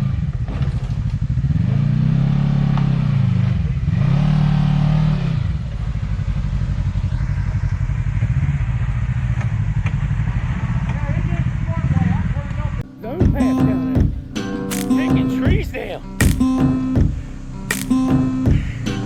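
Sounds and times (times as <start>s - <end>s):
utility vehicle engine revving: 0.0s - 10.9s.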